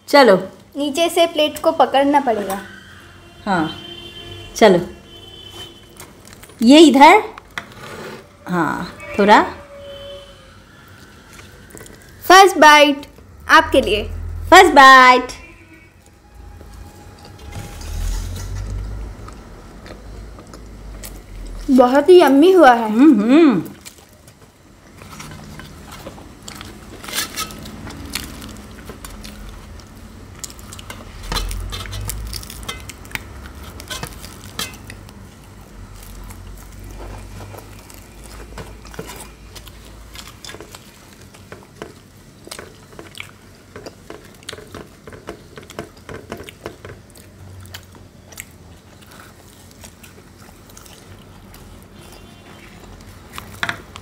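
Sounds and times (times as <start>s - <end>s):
chewing crispy fried bread: 5.4s - 6.6s, 23.6s - 54.0s
low rumble: 13.3s - 19.8s.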